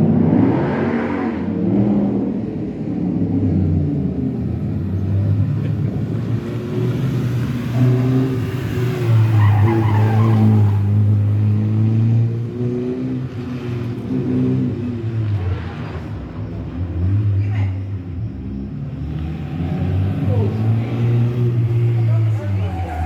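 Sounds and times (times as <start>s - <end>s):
tyre squeal: 7.7s - 11.0s, 22.0s - 23.0s.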